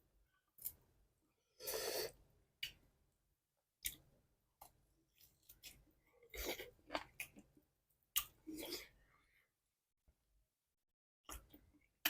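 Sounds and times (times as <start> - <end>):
person chewing: 4.6 - 8.9.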